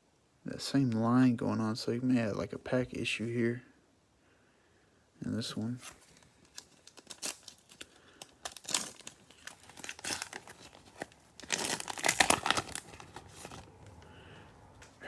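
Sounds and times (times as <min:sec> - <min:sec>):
cellophane wrapper crinkling: 0:05.8 - 0:14.0.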